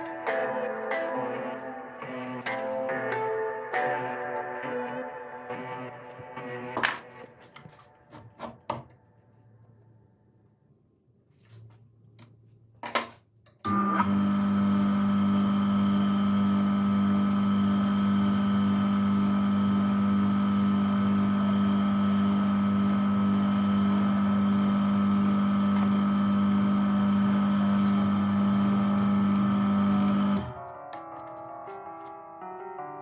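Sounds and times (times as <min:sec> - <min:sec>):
small electric motor humming: 0:13.7 - 0:30.6.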